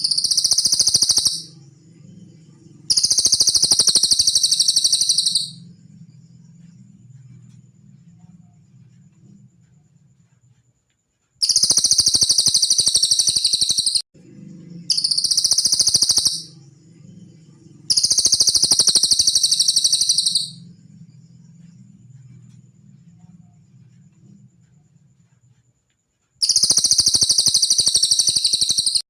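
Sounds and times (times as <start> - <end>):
bird trilling: 0.0 - 1.6, 2.9 - 5.6, 11.4 - 14.0, 14.9 - 16.7, 17.9 - 20.6, 26.4 - 29.0
faint low hum: 0.0 - 12.0, 14.2 - 27.0.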